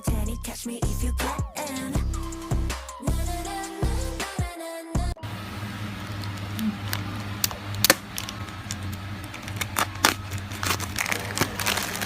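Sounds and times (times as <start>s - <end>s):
hands handling a package: 6.0s - 12.0s.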